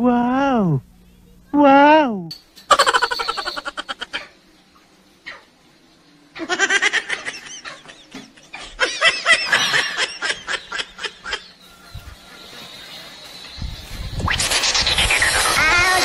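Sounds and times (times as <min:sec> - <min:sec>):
man laughing loudly: 0:02.7 - 0:04.2, 0:06.4 - 0:11.6.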